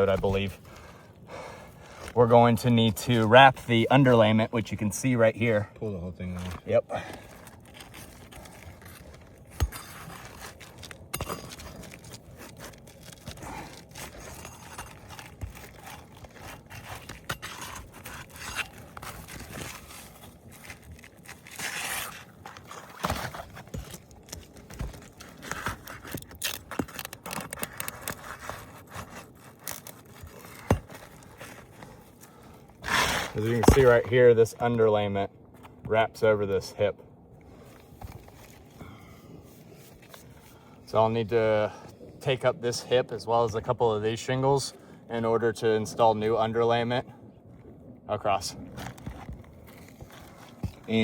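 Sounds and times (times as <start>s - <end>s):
roof shingles scraping and tearing: 7.2s - 34.1s.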